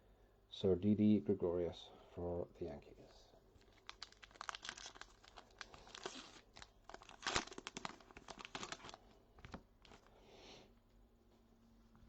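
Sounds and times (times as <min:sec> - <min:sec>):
wrapper tearing and crinkling: 0:03.6 - 0:10.0.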